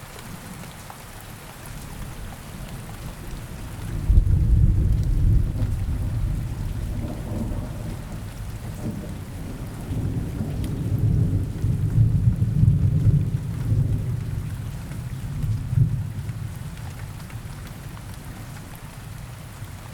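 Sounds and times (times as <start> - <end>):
steady rain: 0.0 - 19.9
rolling thunder rumble: 3.0 - 16.8.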